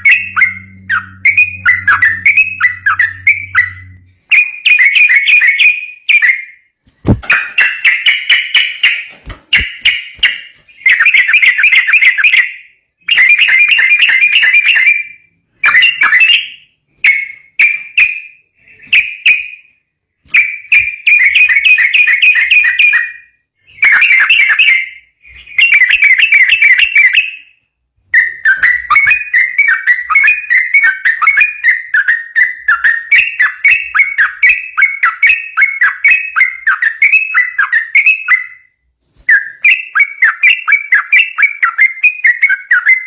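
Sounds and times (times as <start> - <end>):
bulbul singing: 0.0 - 12.5.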